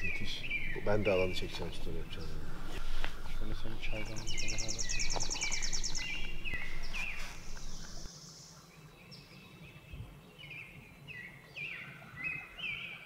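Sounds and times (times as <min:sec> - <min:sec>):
low hum: 0:00.0 - 0:08.1
birds chirping: 0:00.0 - 0:13.0.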